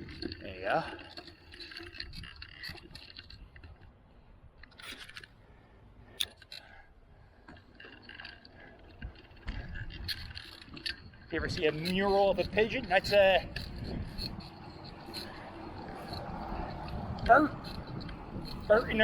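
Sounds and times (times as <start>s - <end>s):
small clicks and rattles: 0.0s - 3.9s, 4.6s - 5.4s, 6.1s - 19.0s
bicycle tyres rumbling: 0.0s - 19.0s
wind on microphone: 9.0s - 19.0s.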